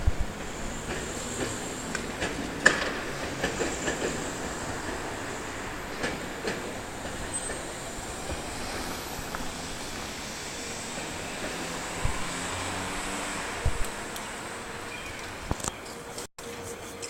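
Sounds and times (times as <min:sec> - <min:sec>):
train running rumble: 0:00.0 - 0:17.0
train wheels clacking over rail joints: 0:00.3 - 0:10.0, 0:10.8 - 0:13.2.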